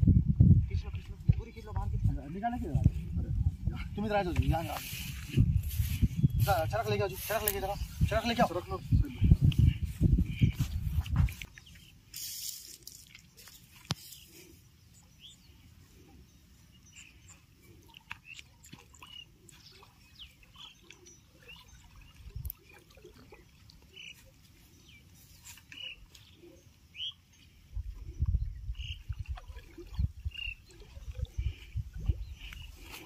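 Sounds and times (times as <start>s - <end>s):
bird chirps: 23.9s - 27.5s, 29.9s - 33.0s.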